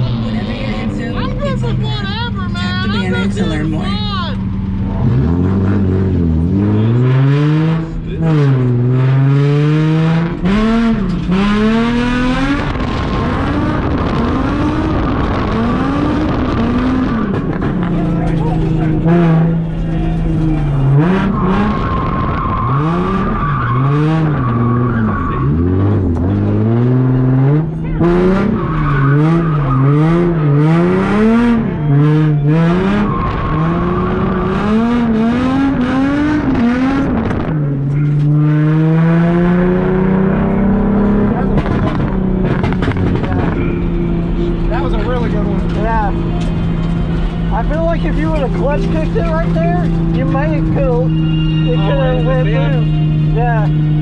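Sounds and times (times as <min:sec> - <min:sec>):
car engine revving hard: 0:04.8 - 0:54.0
tire squeal: 0:18.2 - 0:27.3, 0:27.9 - 0:37.1, 0:42.6 - 0:54.0.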